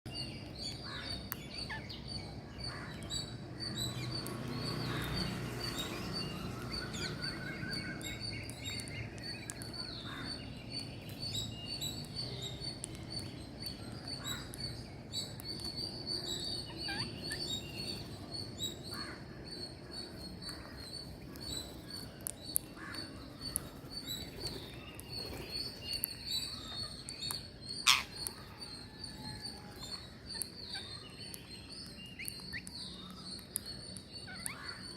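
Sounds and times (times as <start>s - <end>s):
birds chirping: 0.1s - 34.9s
bird trilling call: 27.8s - 28.5s.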